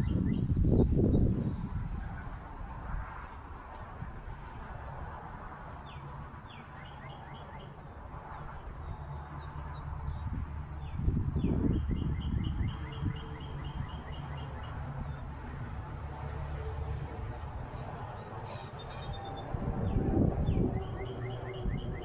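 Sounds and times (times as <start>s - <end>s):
songbird singing: 0.0s - 1.4s, 5.9s - 15.3s, 17.7s - 22.0s.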